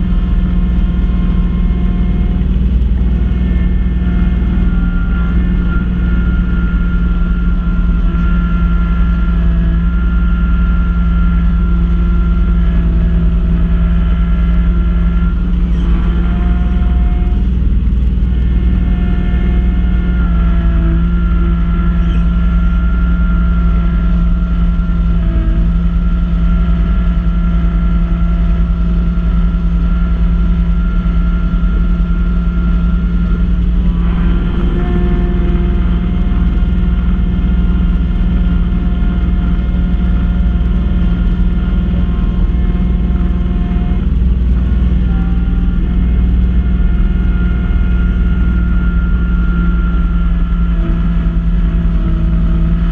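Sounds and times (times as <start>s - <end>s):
drive whine: 0.0s - 52.9s
tractor diesel engine: 0.0s - 52.9s.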